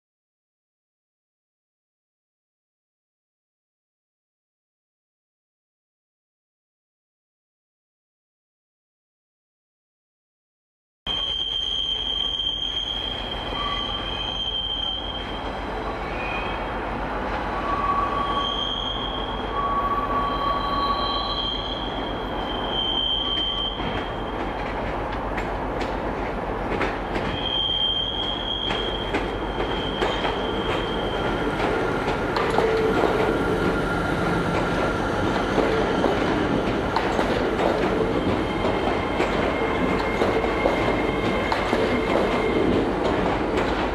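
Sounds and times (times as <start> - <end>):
train wheels squealing: 11.1 - 24.9, 26.8 - 43.1
train rumbling past: 11.8 - 43.9.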